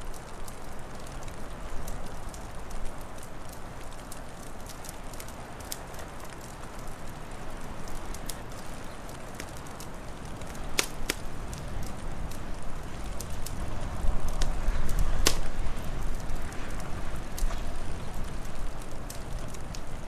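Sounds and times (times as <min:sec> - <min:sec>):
wood fire crackling: 0:00.0 - 0:20.0
sharp pops: 0:15.2 - 0:15.5.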